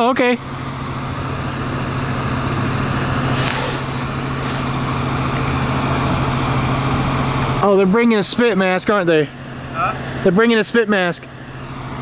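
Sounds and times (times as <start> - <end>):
vehicle engine idling: 0.0 - 12.0
brief hisses: 3.1 - 4.8.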